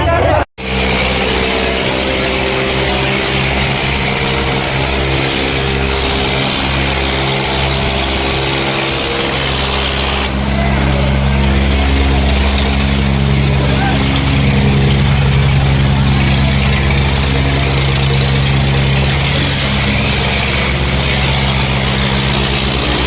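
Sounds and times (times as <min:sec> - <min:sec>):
tractor diesel engines under load: 0:00.0 - 0:23.0.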